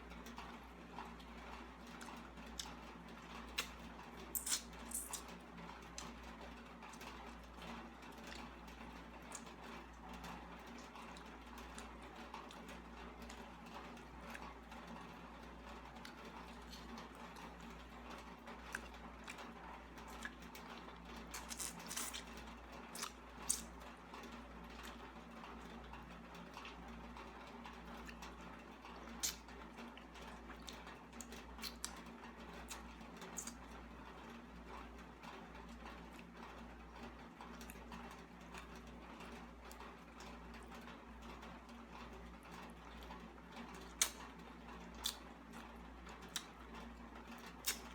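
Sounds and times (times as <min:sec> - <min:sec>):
person chewing: 0:03.5 - 0:05.3, 0:18.6 - 0:19.5, 0:20.1 - 0:23.7, 0:30.5 - 0:32.0, 0:43.8 - 0:44.2, 0:45.0 - 0:45.2, 0:47.6 - 0:47.9.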